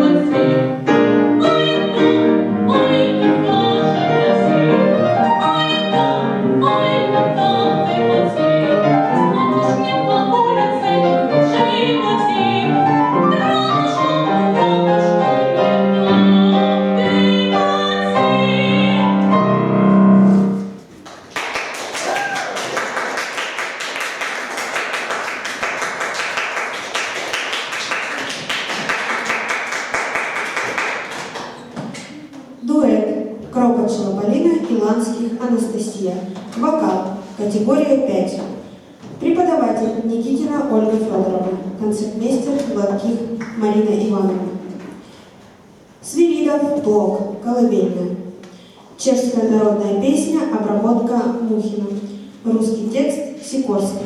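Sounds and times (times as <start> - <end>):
classical singing with piano: 0.0 - 20.8
audience applause: 21.1 - 31.7.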